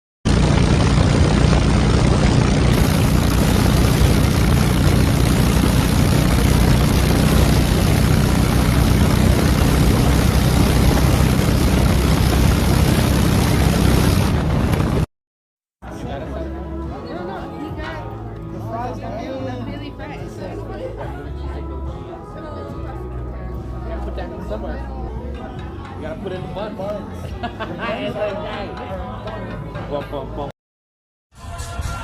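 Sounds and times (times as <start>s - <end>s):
loud rushing noise: 0.3s - 15.1s
motorcycle engine running: 0.3s - 15.1s.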